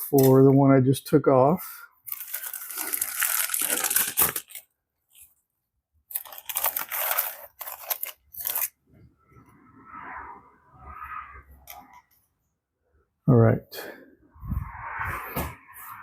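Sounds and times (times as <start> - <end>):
plastic packaging crinkling and tearing: 2.1 - 5.3, 6.1 - 8.8.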